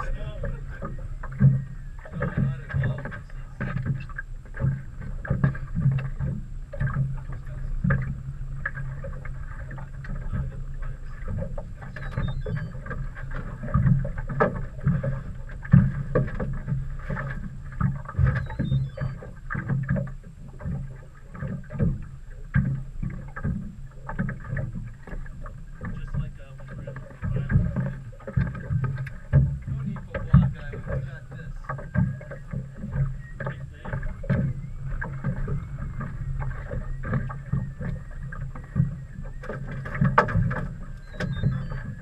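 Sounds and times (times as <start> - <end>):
boat motor humming: 0.0 - 42.0
knocks and thumps: 27.0 - 42.0.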